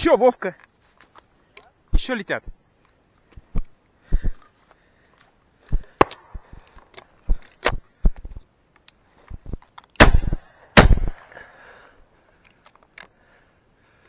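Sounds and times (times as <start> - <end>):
loud shotgun shots: 6.0 - 6.7, 10.0 - 11.3
faint sharp cracks and knocks: 6.0 - 11.2.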